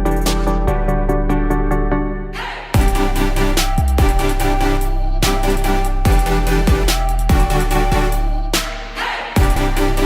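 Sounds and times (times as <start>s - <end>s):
electronic dance music: 2.3s - 10.0s.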